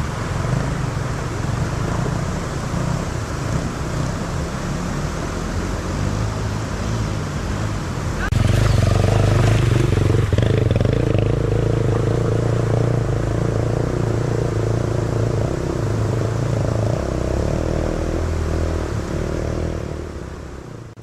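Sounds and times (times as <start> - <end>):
dirt bike engine running: 8.3 - 16.5.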